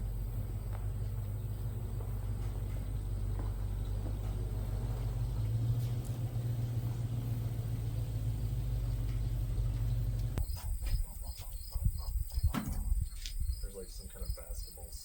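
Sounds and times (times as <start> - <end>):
motor droning: 0.0 - 10.4.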